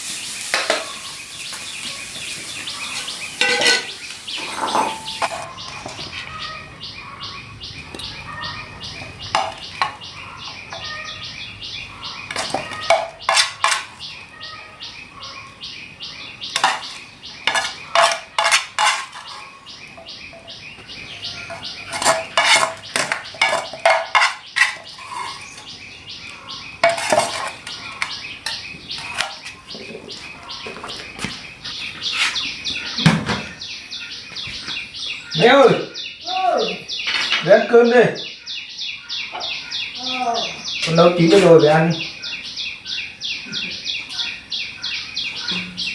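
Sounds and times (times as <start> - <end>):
metal utensils clinking on pot: 3.4 - 6.1, 9.3 - 10.0, 12.3 - 14.0, 16.6 - 19.5, 21.4 - 25.5, 26.8 - 29.4.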